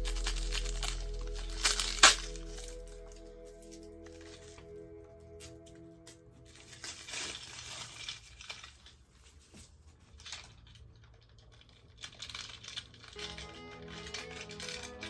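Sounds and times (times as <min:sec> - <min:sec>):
background music: 0:00.0 - 0:07.4, 0:13.2 - 0:15.0
wrapping crinkling and rustling: 0:00.0 - 0:15.0.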